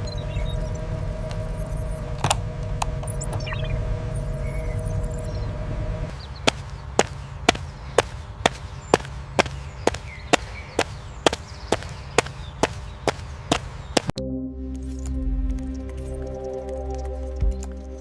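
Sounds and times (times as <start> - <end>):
industrial machinery rumbling: 0.0 - 14.1
regular sharp taps: 6.5 - 14.1.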